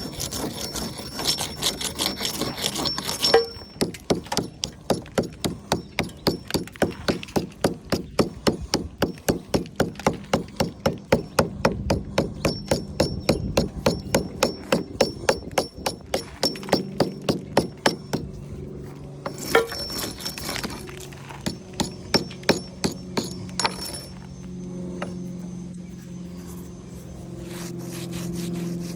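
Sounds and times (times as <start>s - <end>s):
low steady hum: 0.0s - 28.9s
hammer striking brick: 2.8s - 18.3s, 19.3s - 20.8s, 21.4s - 24.1s.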